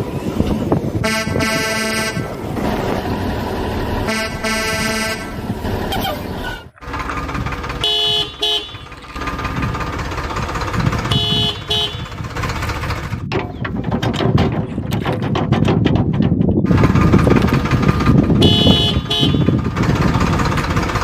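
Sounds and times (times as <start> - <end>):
engine running: 0.0 - 16.0, 16.6 - 21.0
vehicle horn double toot: 1.0 - 2.2, 4.1 - 5.4, 7.8 - 8.9, 11.0 - 12.2, 18.4 - 19.6.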